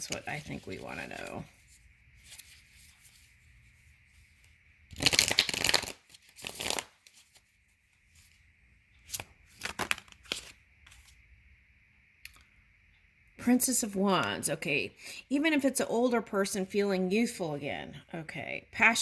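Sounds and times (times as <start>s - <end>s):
cards riffling: 4.9s - 7.4s.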